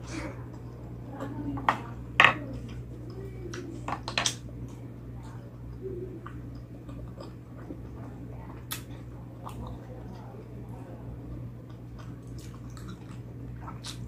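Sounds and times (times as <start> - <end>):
steady low hum: 0.0 - 14.0
person chewing food: 4.6 - 10.4, 11.2 - 14.0.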